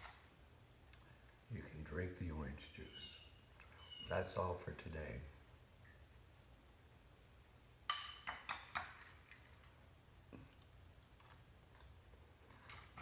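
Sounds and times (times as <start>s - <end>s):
tableware clinking: 7.9s - 9.0s.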